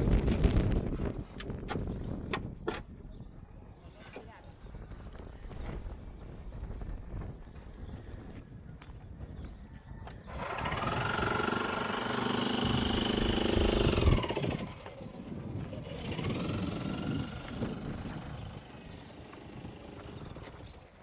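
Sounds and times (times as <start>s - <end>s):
small engine revving: 10.2s - 21.0s.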